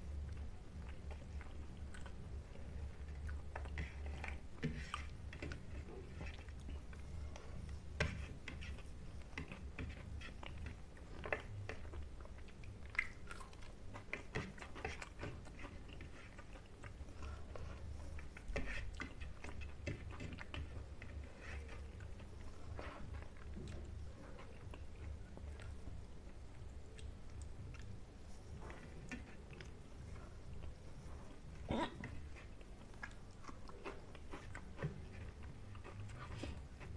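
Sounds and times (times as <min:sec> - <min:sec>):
person chewing food: 0:00.1 - 0:36.9.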